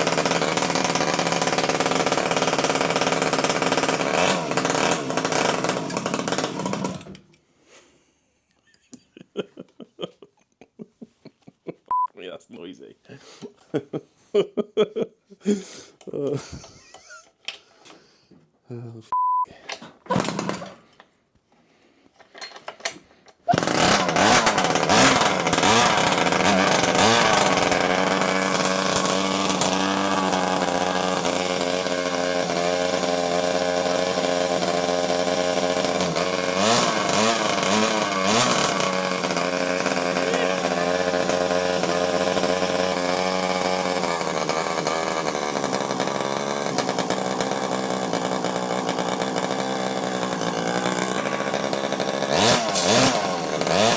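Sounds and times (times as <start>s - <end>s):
two-stroke engine running: 0.0s - 7.2s, 20.1s - 20.9s, 23.5s - 53.9s.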